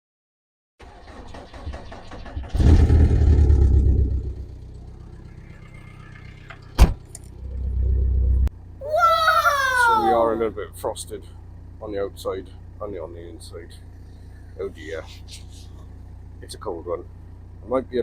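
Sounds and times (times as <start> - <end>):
van engine starting and running: 0.8 - 8.5.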